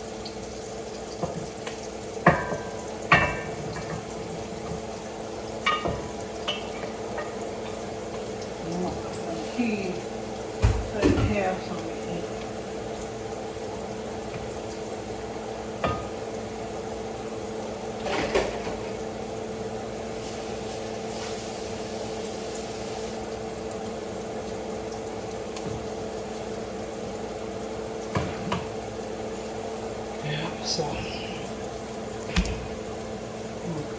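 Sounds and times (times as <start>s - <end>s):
kitchen appliance humming: 0.0s - 33.9s
cookware knocks and clatter: 2.3s - 4.8s, 5.7s - 7.8s.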